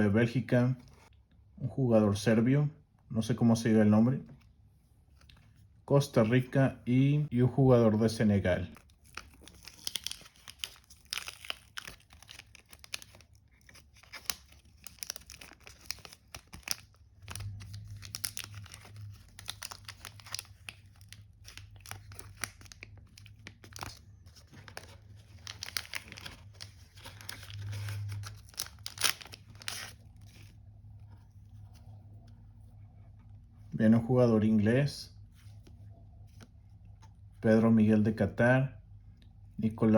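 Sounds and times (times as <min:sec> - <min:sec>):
low steady hum: 0:00.0 - 0:39.9
packets tearing and wrappers crinkling: 0:08.8 - 0:30.6.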